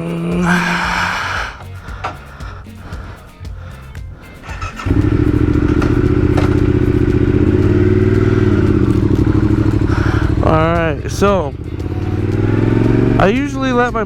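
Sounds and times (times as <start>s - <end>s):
motorcycle engine idling: 0.0s - 14.0s
starter clicks: 0.4s - 10.4s.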